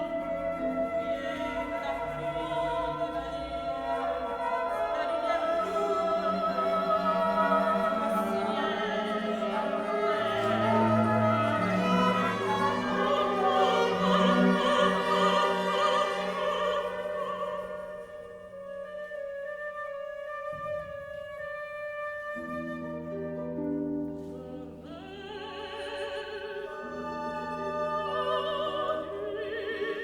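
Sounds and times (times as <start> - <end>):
operatic singing voice: 0.0 - 18.4, 24.6 - 30.0
orchestra playing classical music: 0.0 - 30.0.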